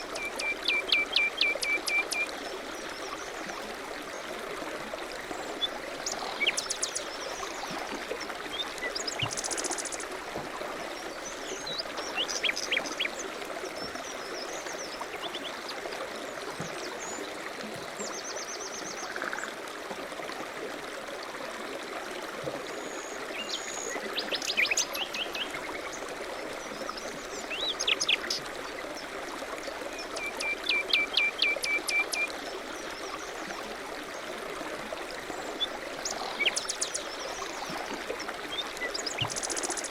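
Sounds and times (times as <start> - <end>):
flowing river water: 0.0 - 39.9
songbirds chirping: 34.9 - 39.9.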